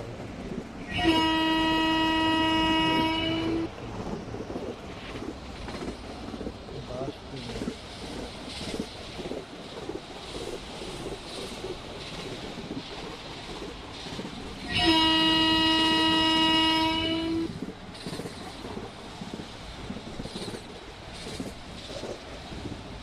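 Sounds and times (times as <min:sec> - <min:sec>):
train running on rails: 0:00.0 - 0:23.0
train horn blast: 0:00.9 - 0:03.7, 0:14.6 - 0:17.5.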